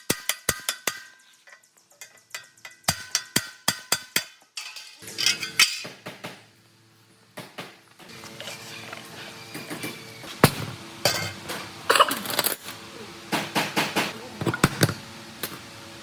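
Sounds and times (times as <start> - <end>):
ringing metal taps: 0.0 - 6.0
metallic scraping and rattling: 4.2 - 6.0.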